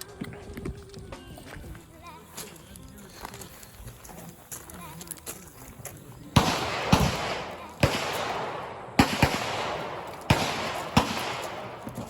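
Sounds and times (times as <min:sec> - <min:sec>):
echoing gunshots: 0:06.4 - 0:12.0.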